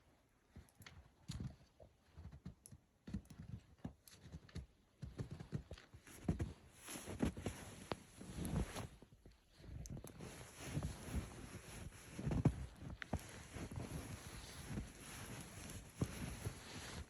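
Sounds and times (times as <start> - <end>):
footsteps in snow: 4.2 - 9.1, 10.1 - 17.0.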